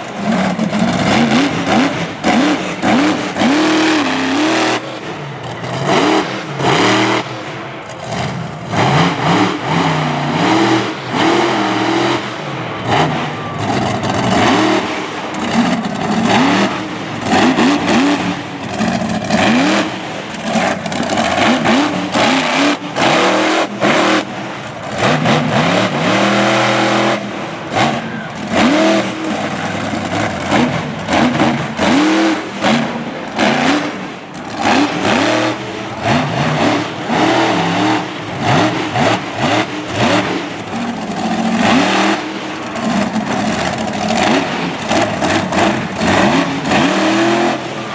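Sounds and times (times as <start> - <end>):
monster truck engine revving: 0.0 - 47.9.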